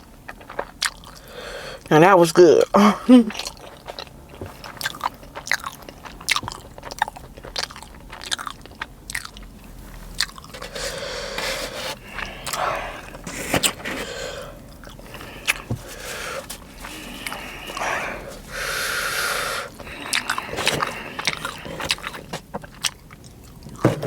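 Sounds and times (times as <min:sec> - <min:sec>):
chewing with wet mouth clicks: 0:00.0 - 0:01.9, 0:03.3 - 0:11.3, 0:14.5 - 0:23.8.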